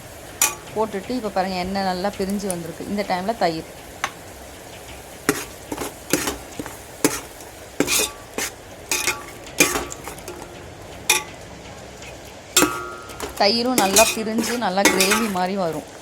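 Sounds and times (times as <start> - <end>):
utensil clinking against metal: 0.0 - 1.4, 4.8 - 16.0
faint sizzle: 0.0 - 16.0
metal utensil scraping a pot: 0.4 - 0.9, 5.2 - 16.0.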